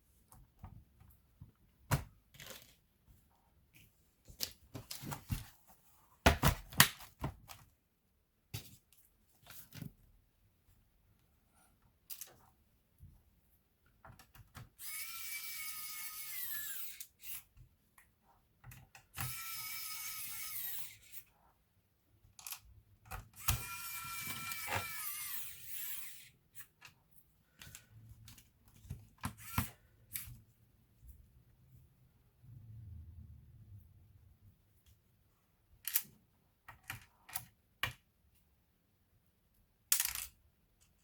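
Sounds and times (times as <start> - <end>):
power screwdriver whirring: 14.8 - 17.5, 19.2 - 21.2, 23.4 - 26.3, 29.3 - 29.8.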